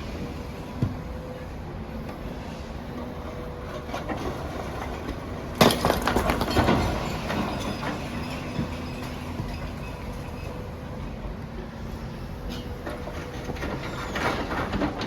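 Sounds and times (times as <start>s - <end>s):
masonry and rubble crashing: 3.9s - 10.5s.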